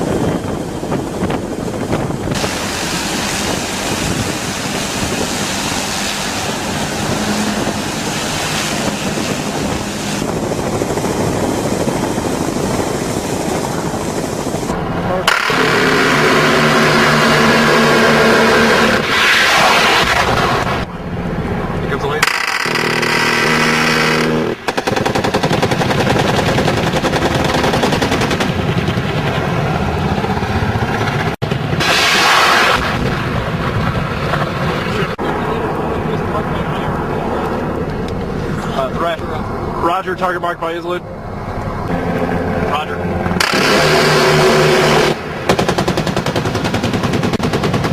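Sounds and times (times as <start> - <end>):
helicopter rotor and engine: 0.0 - 19.1, 20.9 - 31.8, 34.4 - 47.9
automatic gunfire: 22.2 - 28.5, 43.4 - 47.9.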